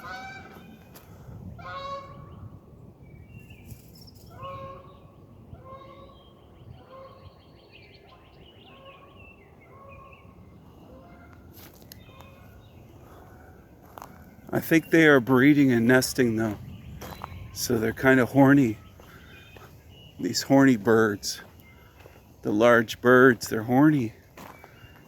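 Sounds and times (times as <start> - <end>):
geese honking: 0.0 - 1.0, 1.6 - 2.4, 4.3 - 7.4, 8.0 - 25.0.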